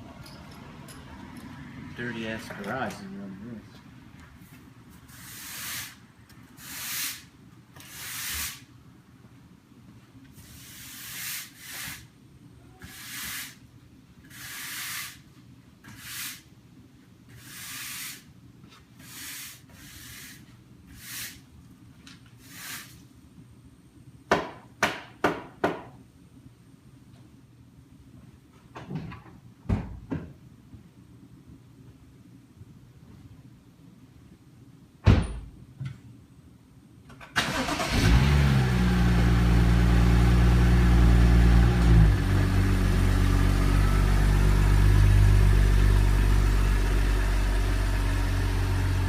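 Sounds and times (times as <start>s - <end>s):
broom sweeping floor: 4.4s - 8.7s, 10.2s - 12.1s, 12.8s - 13.6s, 14.2s - 16.5s, 17.3s - 21.5s, 22.3s - 23.1s.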